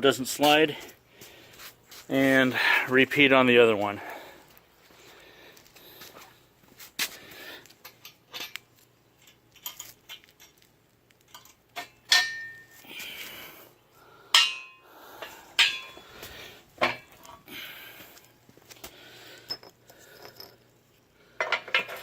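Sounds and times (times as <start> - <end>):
metal clanks ringing: 11.3 - 12.8, 14.3 - 16.1.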